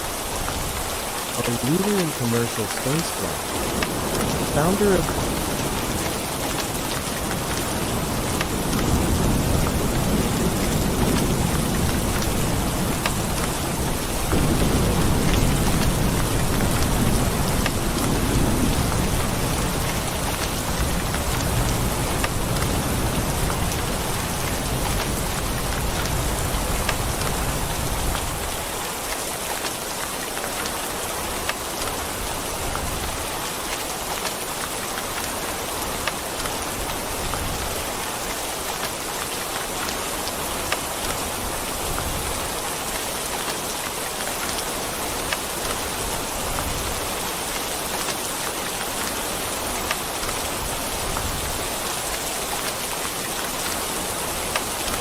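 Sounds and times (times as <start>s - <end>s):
heavy rain falling: 0.0s - 55.0s
low rumble of thunder: 3.5s - 28.5s.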